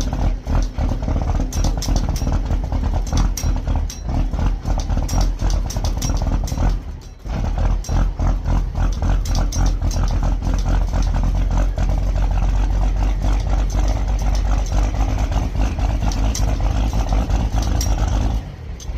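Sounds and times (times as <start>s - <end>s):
diesel engine clattering: 0.0s - 18.9s.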